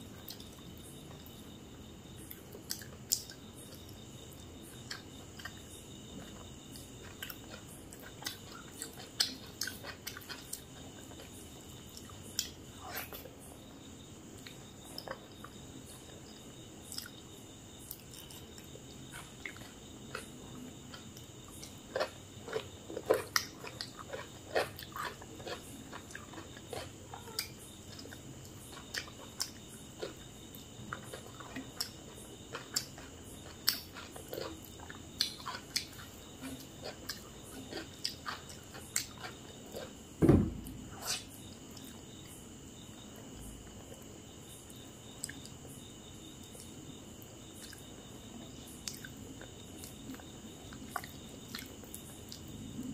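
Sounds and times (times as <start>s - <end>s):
wet chewing and mouth smacks: 20.9s - 40.0s, 48.8s - 52.5s
dull thump: 40.2s - 41.0s.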